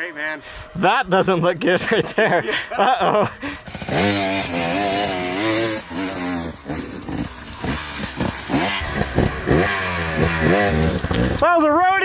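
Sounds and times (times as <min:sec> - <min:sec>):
electric dirt bike motor whining: 0:03.6 - 0:11.4.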